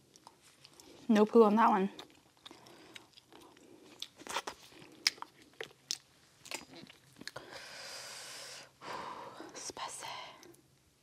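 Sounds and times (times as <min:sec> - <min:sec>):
close chewing with wet clicks: 0:00.0 - 0:01.1, 0:01.9 - 0:07.4.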